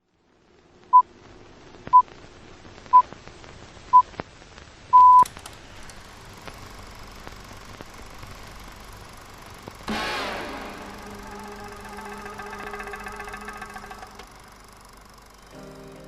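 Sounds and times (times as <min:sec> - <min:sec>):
faint hiss: 0:00.1 - 0:16.0
electronic countdown beeps: 0:05.0 - 0:05.2.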